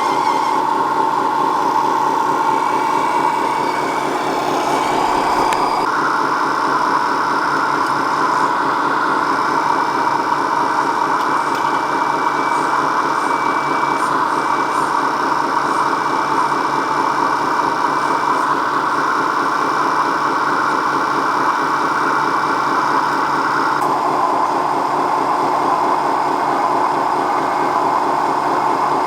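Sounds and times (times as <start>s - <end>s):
thin high whine: 0.0s - 29.0s
model vehicle motor running: 1.5s - 5.9s.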